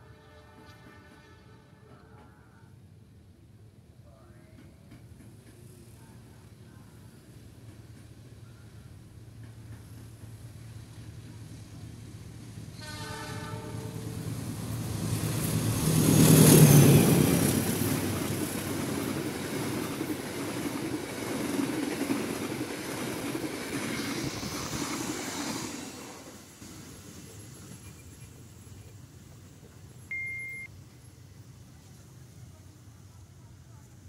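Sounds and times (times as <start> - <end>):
train horn blast: 0.0 - 2.3, 12.7 - 14.2
diesel locomotive passing: 4.6 - 34.0.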